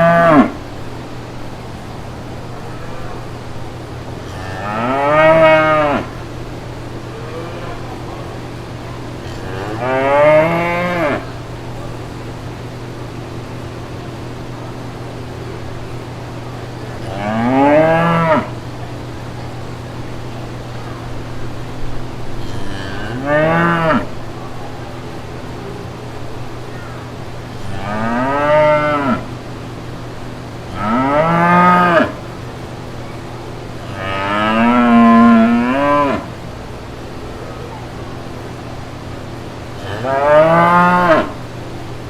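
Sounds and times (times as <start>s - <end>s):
cow mooing: 0.0s - 0.6s, 4.2s - 6.2s, 9.2s - 11.4s, 17.0s - 18.6s, 22.4s - 24.1s, 27.5s - 29.3s, 30.7s - 32.2s, 33.8s - 36.3s, 39.8s - 41.4s
steady low hum: 0.0s - 42.0s.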